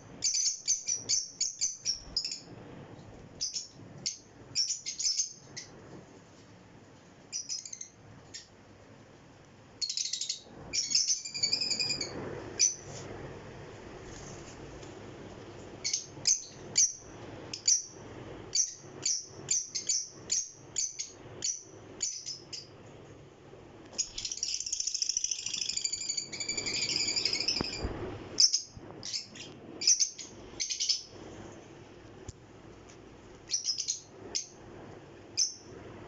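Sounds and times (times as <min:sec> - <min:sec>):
parrots chirping and chattering: 0:00.2 - 0:02.5, 0:03.4 - 0:05.8, 0:07.3 - 0:08.5, 0:09.8 - 0:12.8, 0:15.8 - 0:17.9, 0:24.0 - 0:27.8, 0:28.4 - 0:31.1, 0:33.5 - 0:34.6, 0:35.4 - 0:35.7.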